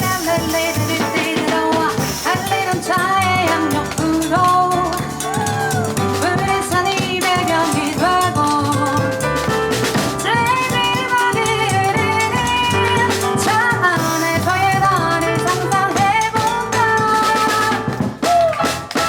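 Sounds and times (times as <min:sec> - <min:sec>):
double bass: 0:00.0 - 0:19.0
drum kit: 0:00.0 - 0:19.0
piano: 0:00.0 - 0:19.0
sliding melody line: 0:00.0 - 0:19.0.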